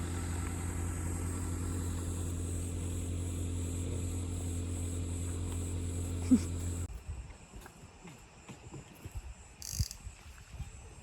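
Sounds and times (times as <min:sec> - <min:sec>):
low mechanical hum: 0:00.0 - 0:07.8.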